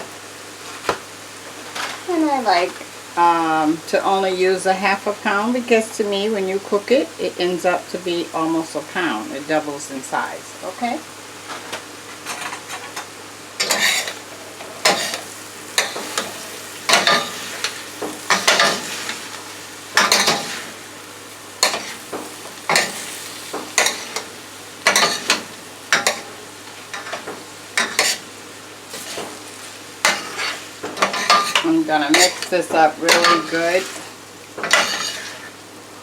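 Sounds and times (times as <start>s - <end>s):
vegetables sizzling in a pan: 0.0s - 36.0s
utensil scraping a pan: 12.2s - 19.4s, 26.9s - 28.3s, 28.9s - 35.6s.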